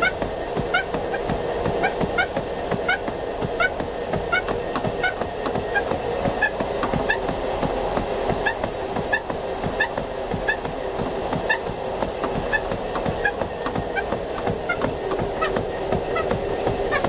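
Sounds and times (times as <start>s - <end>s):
footfall thuds on treadmill belt: 0.0s - 17.0s
treadmill running: 0.0s - 17.0s
high creaking squeak: 14.0s - 17.0s.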